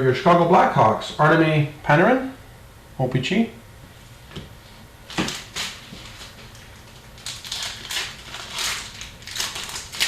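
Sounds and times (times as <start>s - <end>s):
cards and wrappers rustling: 5.1s - 10.0s.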